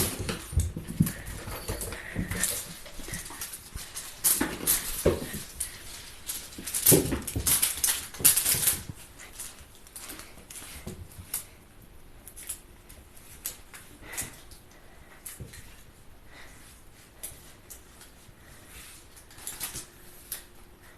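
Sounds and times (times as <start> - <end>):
cat paws thudding and scrabbling: 0.0 - 11.3
toy wings rustling and crackling: 0.0 - 11.5.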